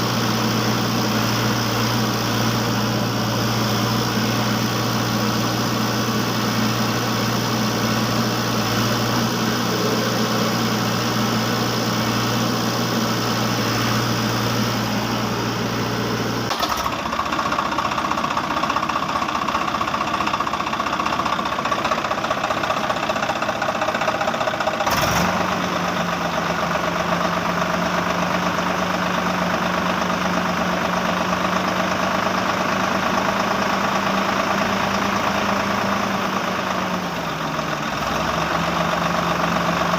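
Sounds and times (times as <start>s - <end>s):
vehicle engine idling: 0.0s - 39.9s
faint engine knocking: 16.5s - 39.9s.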